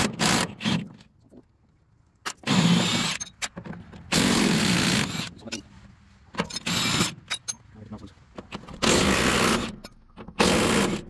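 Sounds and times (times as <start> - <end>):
impact wrench bursts: 8.8 - 11.0.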